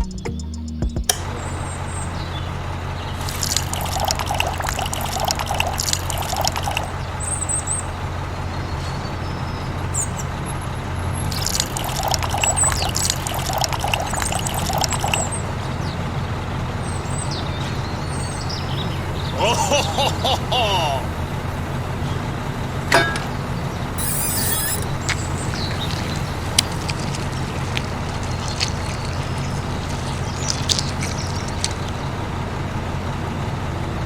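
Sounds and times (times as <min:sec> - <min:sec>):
liquid pouring and splashing: 0:03.2 - 0:07.0, 0:11.2 - 0:15.4, 0:24.0 - 0:32.3.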